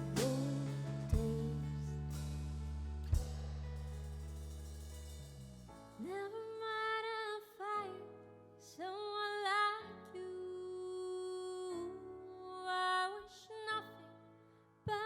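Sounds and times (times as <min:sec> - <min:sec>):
woman singing: 0:00.0 - 0:02.0, 0:06.0 - 0:14.1.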